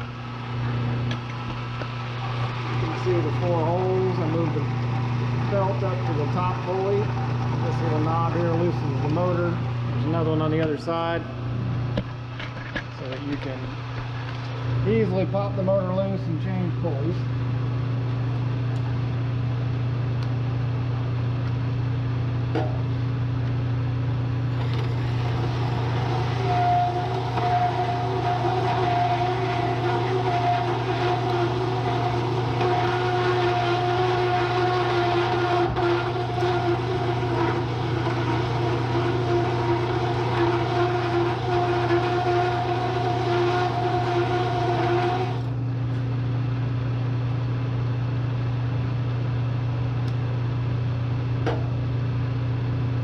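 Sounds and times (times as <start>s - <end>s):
milling machine motor humming: 0.0s - 12.2s, 23.4s - 46.0s
steady high whine: 0.0s - 52.4s
higher whirring: 24.5s - 45.6s.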